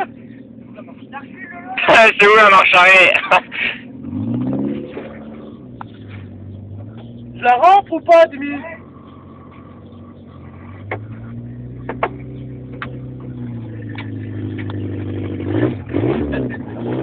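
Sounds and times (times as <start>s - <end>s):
car engine from inside cabin: 0.0s - 17.0s
sharp knocks from car: 11.8s - 12.2s.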